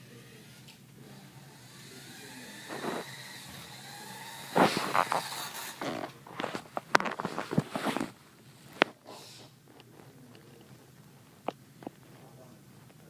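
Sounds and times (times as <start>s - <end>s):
toy car electric motor whining: 0.0s - 6.2s.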